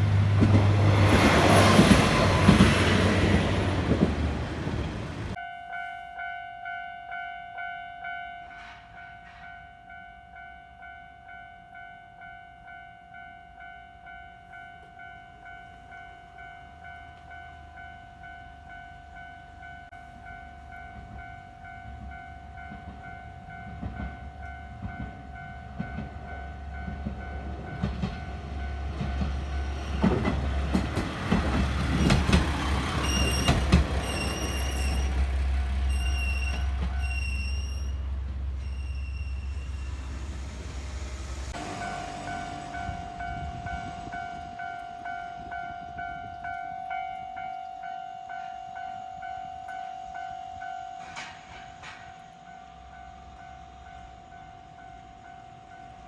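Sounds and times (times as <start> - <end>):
train rumbling past: 0.0 - 5.4, 13.2 - 48.9
train wheels clicking over rail joints: 0.0 - 5.4, 21.9 - 38.7, 51.0 - 52.4
level-crossing bell clanging: 5.2 - 38.0.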